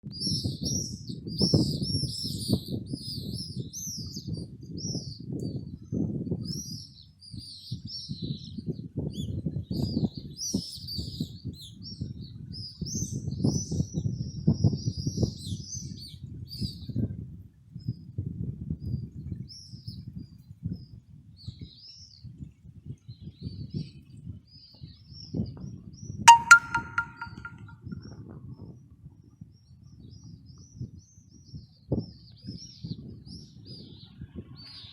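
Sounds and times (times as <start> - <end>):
sharp click with ringing tone: 26.3 - 27.7.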